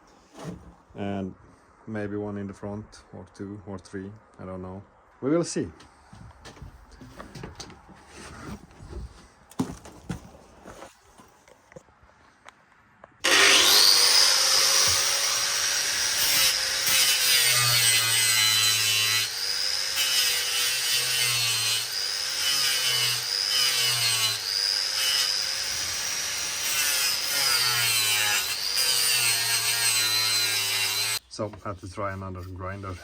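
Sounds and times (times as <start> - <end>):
angle grinder sanding wood: 13.2 - 33.0.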